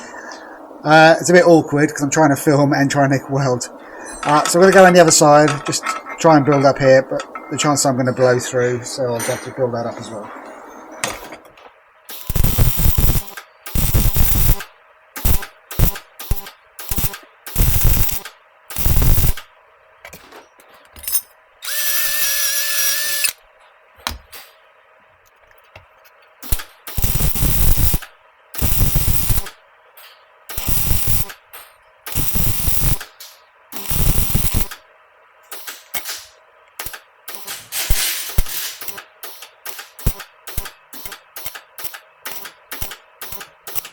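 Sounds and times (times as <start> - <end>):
arc welder crackling: 12.0 - 19.6, 21.6 - 23.5, 25.8 - 29.7, 30.4 - 43.9
welder buzz: 12.1 - 19.5, 21.0 - 23.4, 26.4 - 29.6, 30.5 - 34.8, 35.5 - 43.9.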